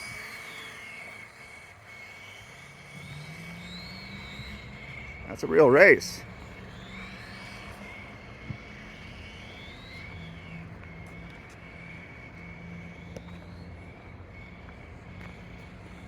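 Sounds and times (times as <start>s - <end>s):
electric race car motor whine: 0.0s - 16.0s.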